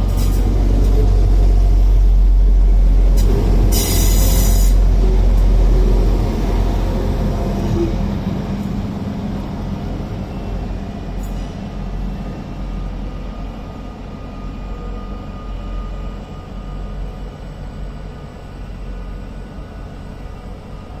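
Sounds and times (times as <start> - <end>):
diesel train engine rumble: 0.0 - 21.0.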